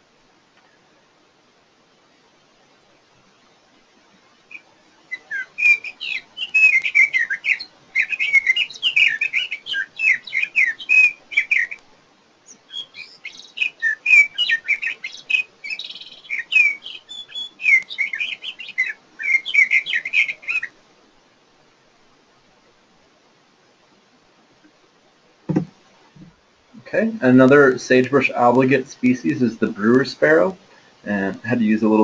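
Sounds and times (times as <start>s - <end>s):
bird singing warbled song: 4.2s - 11.8s, 12.4s - 20.8s.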